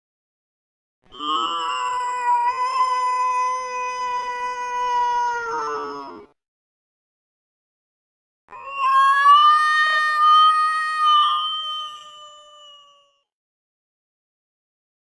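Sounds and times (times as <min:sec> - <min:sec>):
cat yowling angrily: 0:01.5 - 0:06.3, 0:08.6 - 0:12.8.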